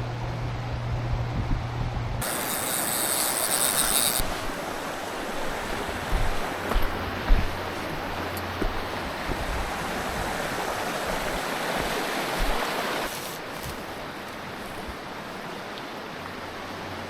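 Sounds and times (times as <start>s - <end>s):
stream rushing over rocks: 4.2s - 17.0s.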